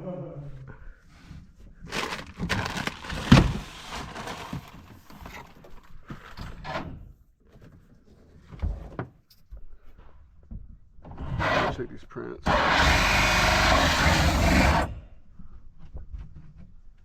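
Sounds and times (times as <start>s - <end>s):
rustling handling sounds: 1.2s - 6.4s.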